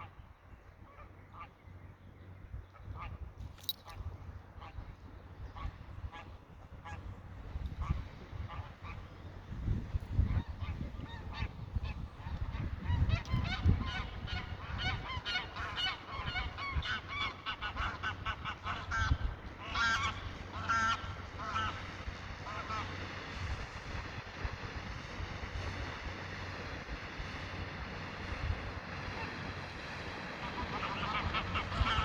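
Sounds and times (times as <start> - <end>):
geese honking: 12.9 - 23.0, 30.2 - 32.0.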